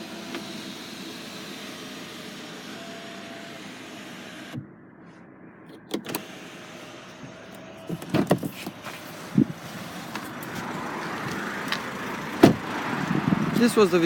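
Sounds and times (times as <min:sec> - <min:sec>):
knocks on car: 0:12.4 - 0:12.6.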